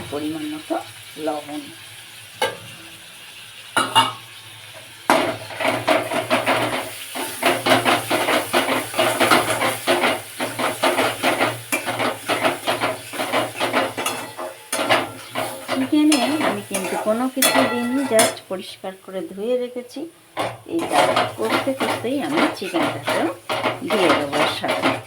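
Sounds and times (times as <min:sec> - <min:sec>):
oil sizzling: 0:00.0 - 0:25.0
spatula scraping a pan: 0:03.8 - 0:18.5, 0:20.4 - 0:25.0.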